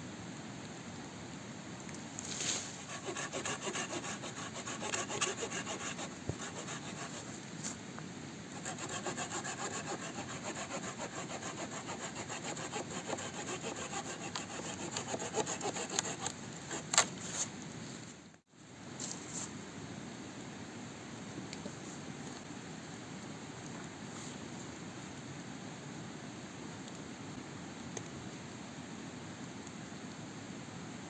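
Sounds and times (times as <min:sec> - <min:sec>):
hand saw cutting wood: 0:02.8 - 0:07.3, 0:08.6 - 0:17.1.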